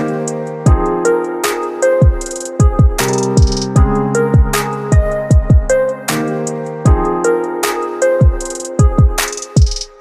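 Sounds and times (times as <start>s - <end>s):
falling-pitch kick drum beat: 2.0s - 5.8s, 8.2s - 9.8s.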